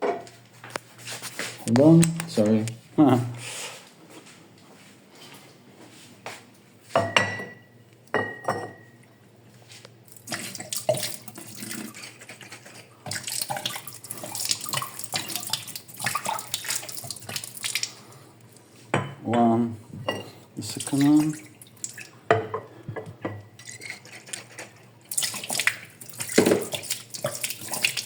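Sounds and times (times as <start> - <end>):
glass bottles clinking: 7.0 - 8.9, 20.1 - 20.3
water running and splashing: 10.1 - 18.0, 20.6 - 22.2, 23.6 - 28.0.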